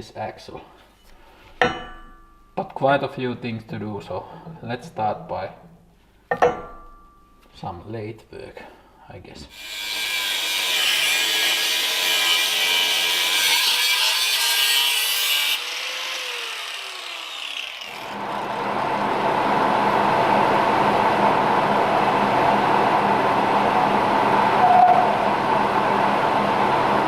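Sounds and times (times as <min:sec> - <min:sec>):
power tool cutting metal: 0:09.5 - 0:18.6.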